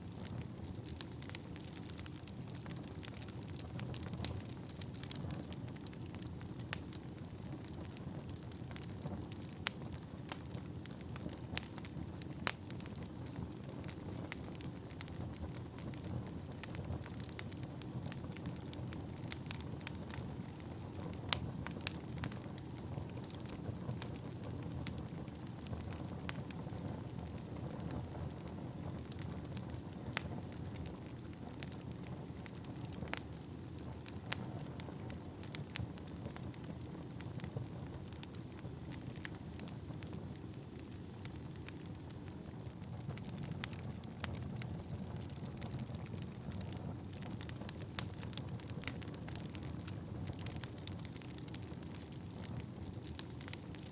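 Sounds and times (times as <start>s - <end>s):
burning logs crackling and popping: 0.0s - 53.9s
faint thin whistle: 36.9s - 42.5s
fire flames rushing: 42.6s - 53.5s.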